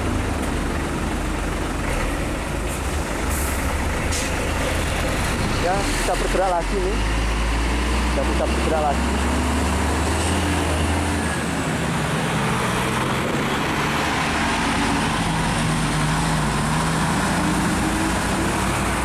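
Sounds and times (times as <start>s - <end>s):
heavy truck engines running: 0.0s - 19.0s
road noise: 0.0s - 19.0s.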